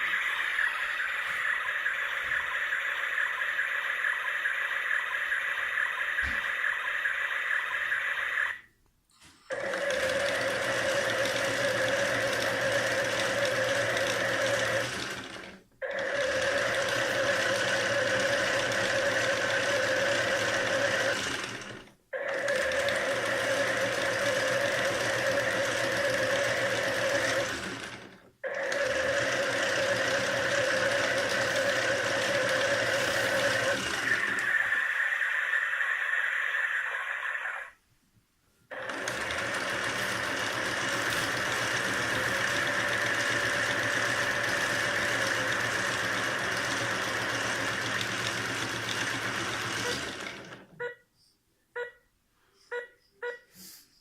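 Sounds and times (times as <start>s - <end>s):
small electric motor whirring: 28.5s - 35.0s.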